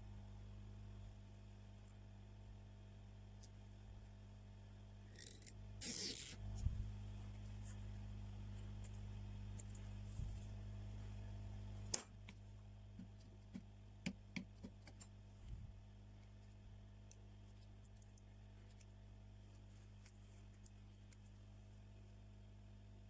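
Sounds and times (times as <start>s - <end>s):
steady low hum: 0.0s - 23.0s
small tools clicking on phone parts: 5.2s - 5.5s.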